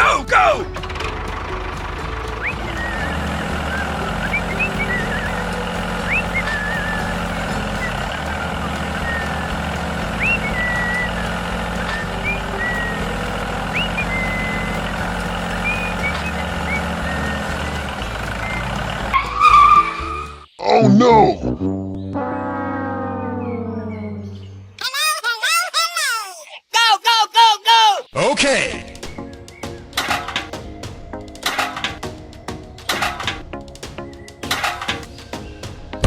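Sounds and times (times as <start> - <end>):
low vehicle engine hum: 0.0 - 20.3.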